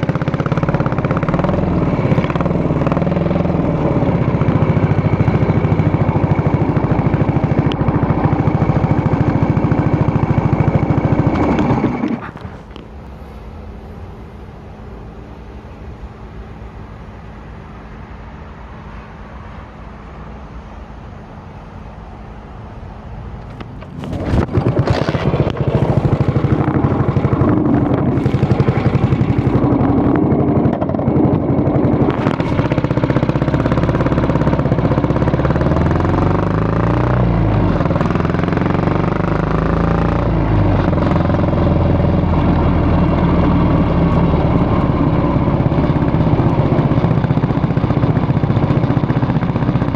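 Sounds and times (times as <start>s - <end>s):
motorcycle engine revving: 0.0s - 12.8s, 23.4s - 49.9s.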